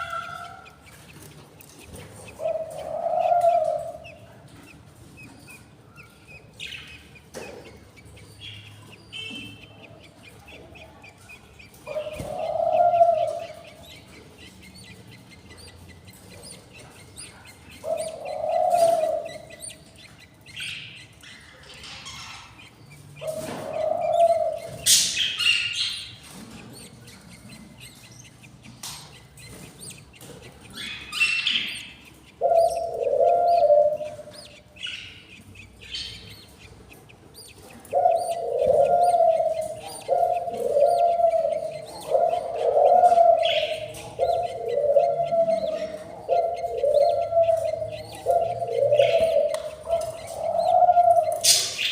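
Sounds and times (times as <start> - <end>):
budgerigars chirping: 0.0 - 51.9
low cooing call: 32.4 - 34.3, 37.9 - 51.9.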